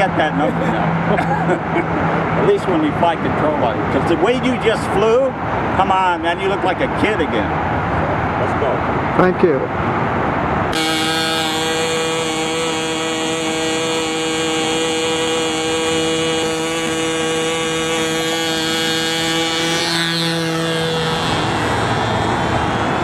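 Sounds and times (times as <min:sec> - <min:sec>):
model airplane engine running: 0:10.7 - 0:23.0.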